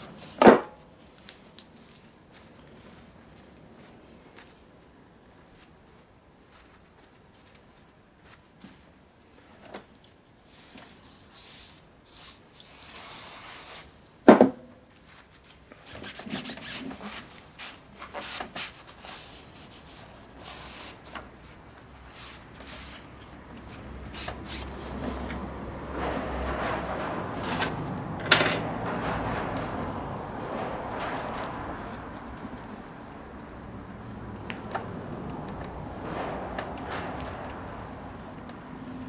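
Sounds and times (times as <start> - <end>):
hand rubbing and scraping metal: 22.1 - 39.0.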